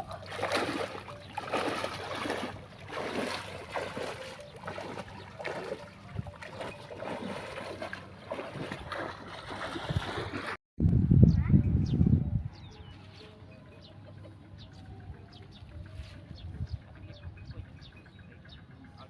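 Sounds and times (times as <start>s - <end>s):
water sloshing and splashing: 0.0s - 10.6s.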